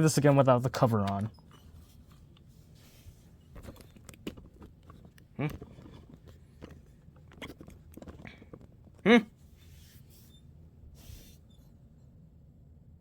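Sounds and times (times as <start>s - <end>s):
hands handling laptop parts: 0.3s - 9.0s.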